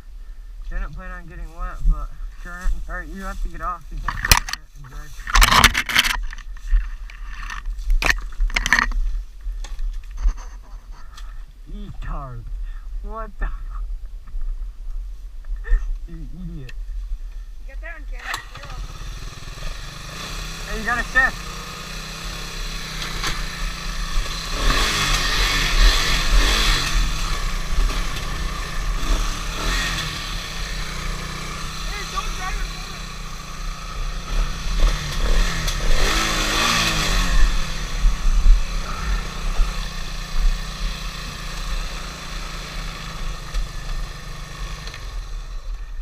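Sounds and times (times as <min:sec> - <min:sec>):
off-road vehicle engine revving: 0:17.9 - 0:46.0.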